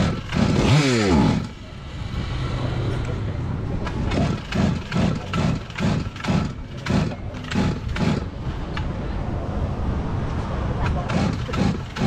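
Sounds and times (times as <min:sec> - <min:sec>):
chainsaw engine revving: 0:00.0 - 0:01.6, 0:04.1 - 0:08.3, 0:11.1 - 0:12.0.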